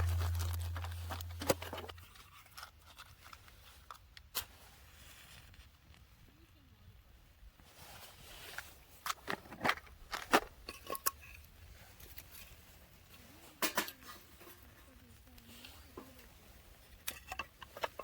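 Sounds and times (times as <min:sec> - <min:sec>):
campfire wood crackling: 0:00.0 - 0:02.2.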